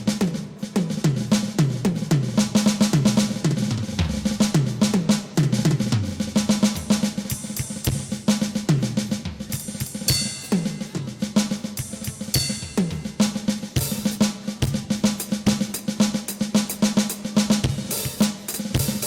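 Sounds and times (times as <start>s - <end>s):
snare and tom fills: 0.0s - 19.0s
hi-hat: 6.4s - 19.0s
cymbal crashes: 9.6s - 11.2s.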